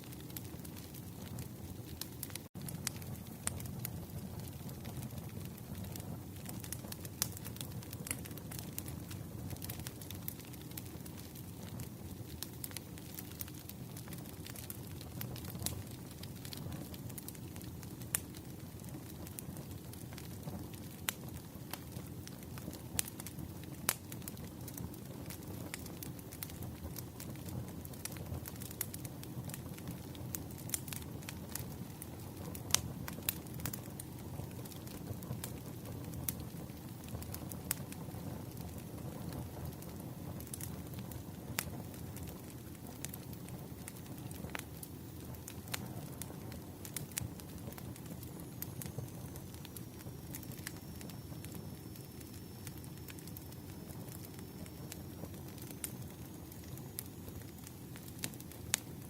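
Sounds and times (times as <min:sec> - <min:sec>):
firewood crackling and popping: 0:00.0 - 0:59.0.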